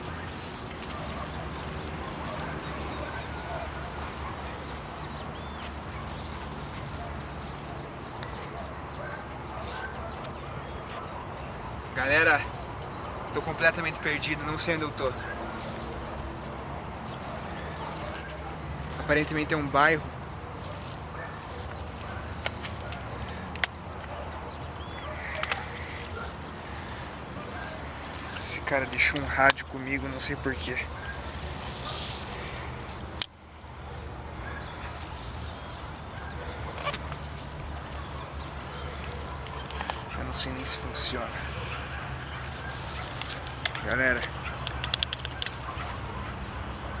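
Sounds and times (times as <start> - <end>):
bird chirp: 0.0 - 18.5, 20.5 - 33.0, 33.8 - 36.6
cricket trilling: 0.0 - 47.0
sharp clicks: 42.8 - 46.0.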